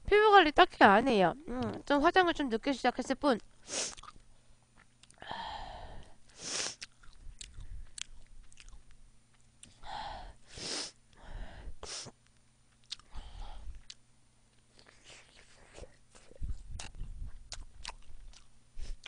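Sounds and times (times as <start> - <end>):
chewing and mouth noises: 3.9 - 5.2, 6.7 - 9.8, 12.7 - 14.0, 14.6 - 19.0
short breathy hisses: 10.5 - 11.0.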